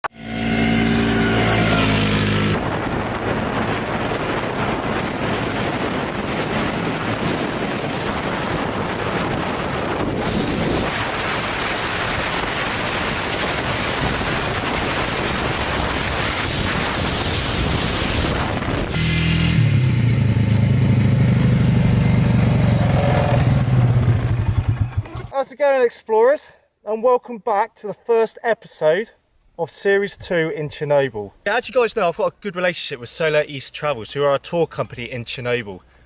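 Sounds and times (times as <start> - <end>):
quad bike engine running: 0.1 - 5.3, 19.0 - 25.3
wind buffeting microphone: 2.0 - 19.0.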